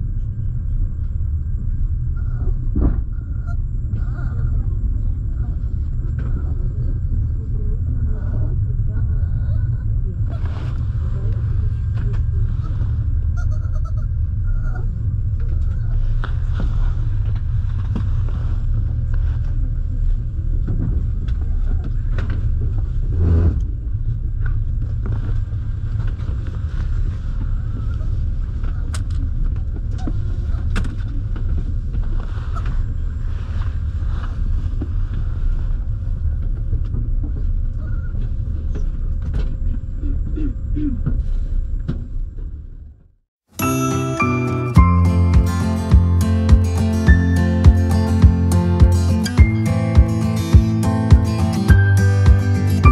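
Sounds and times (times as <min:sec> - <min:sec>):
train rumbling: 0:00.0 - 0:43.0, 0:43.6 - 0:52.9
faint constant hum: 0:00.0 - 0:43.2.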